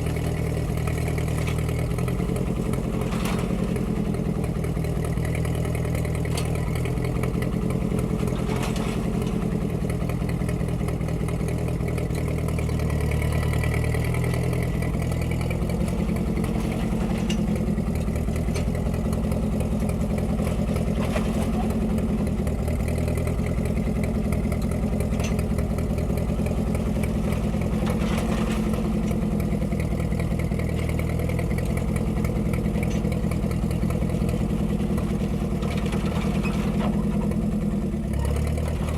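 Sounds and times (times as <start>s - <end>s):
auger digging into ground: 0.0s - 4.2s, 8.0s - 9.6s, 27.1s - 29.4s
tractor engine running: 0.0s - 38.9s
light mechanical clatter: 23.4s - 38.9s.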